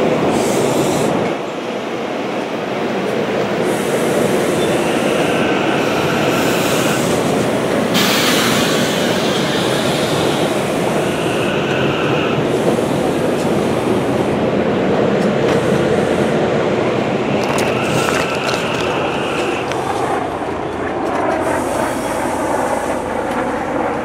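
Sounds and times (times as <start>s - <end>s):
electric train running past: 0.0s - 24.0s
wheels on rails: 17.4s - 20.1s.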